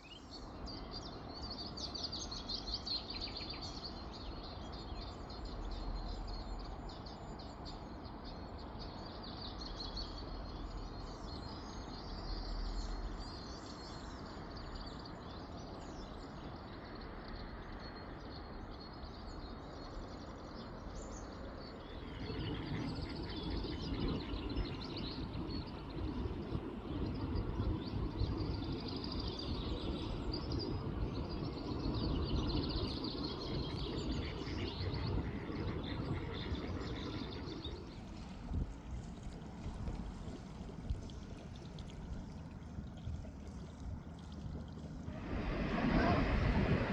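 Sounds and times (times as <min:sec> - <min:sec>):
outdoor background noise: 0:00.0 - 0:46.9
small birds chirping: 0:21.8 - 0:38.3
low rumble: 0:45.0 - 0:46.9.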